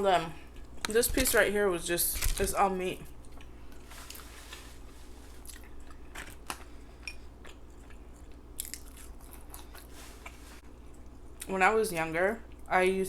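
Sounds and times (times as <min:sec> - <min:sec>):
open-mouth chewing: 0:03.2 - 0:11.5.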